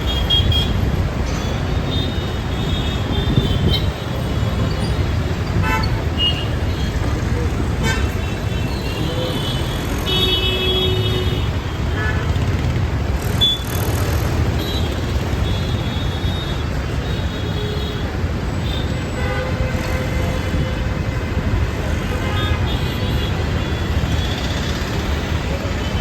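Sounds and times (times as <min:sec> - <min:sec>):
traffic rumble: 0:00.0 - 0:26.0
vehicle horns honking: 0:05.6 - 0:06.7, 0:07.8 - 0:12.4.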